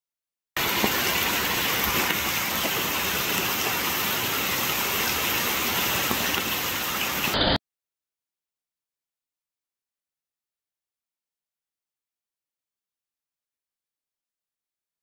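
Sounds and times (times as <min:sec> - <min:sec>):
heavy rain splashing into puddle: 0:00.6 - 0:07.6.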